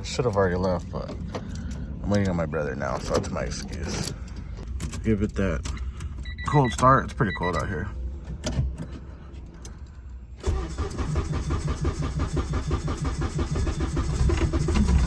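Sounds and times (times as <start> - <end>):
car engine starting and running: 0.0 - 15.0.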